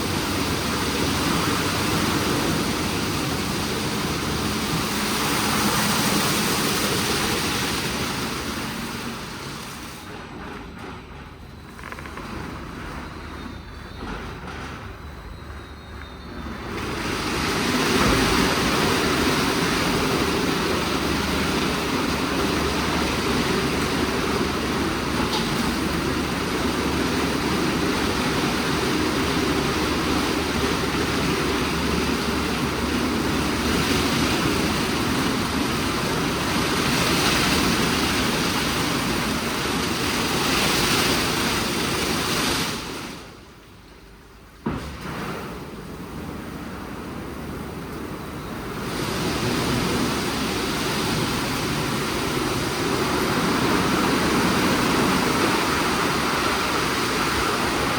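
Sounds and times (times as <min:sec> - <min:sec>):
car wash rushing noise: 0:00.0 - 0:57.9.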